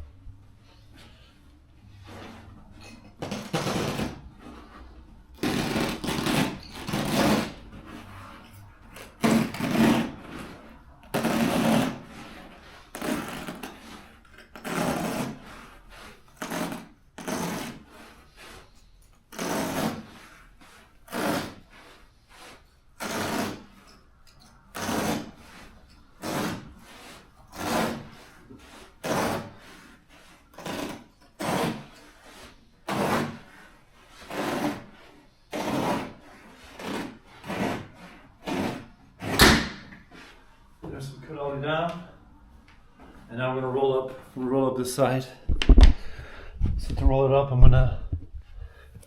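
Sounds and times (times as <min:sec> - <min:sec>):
knife slicing through carpet: 0:03.2 - 0:04.8, 0:05.4 - 0:08.1, 0:08.9 - 0:18.7, 0:19.3 - 0:23.9, 0:24.7 - 0:39.7.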